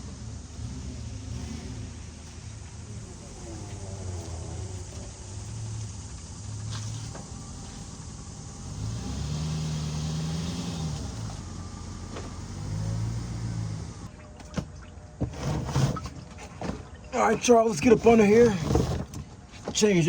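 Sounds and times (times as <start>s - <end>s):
engine revving: 0.0s - 14.2s.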